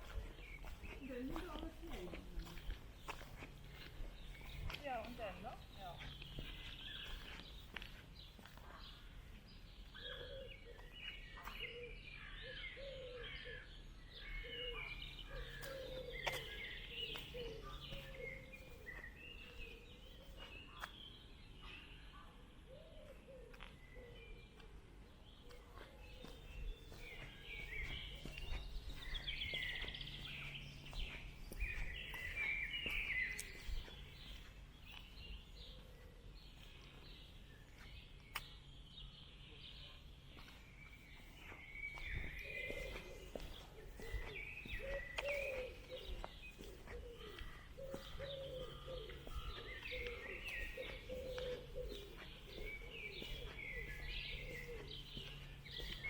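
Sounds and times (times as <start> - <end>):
footsteps: 0.0 - 9.9, 15.5 - 21.0, 24.6 - 35.8, 40.0 - 56.0
birds singing and chirping: 0.0 - 56.0
low cooing calls: 10.0 - 10.9, 14.3 - 20.4, 42.0 - 56.0.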